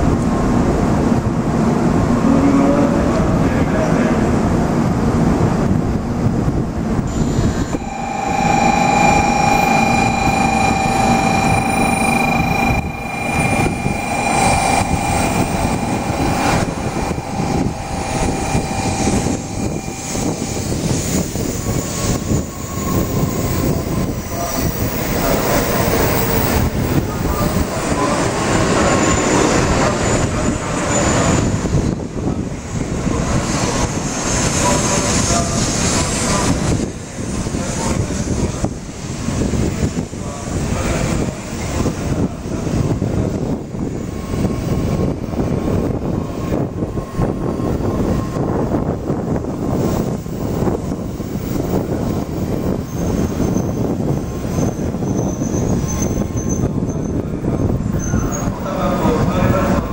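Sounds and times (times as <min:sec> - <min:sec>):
air rushing past train cars: 0:04.4 - 0:24.5
steady multi-pitch whine: 0:07.1 - 0:31.7
train wheels rumbling on rail: 0:17.6 - 0:59.9.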